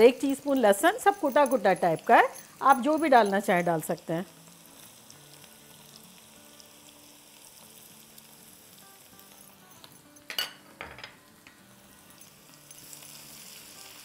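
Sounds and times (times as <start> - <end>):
onion sizzling in hot oil: 0.0 - 10.2, 11.3 - 14.0.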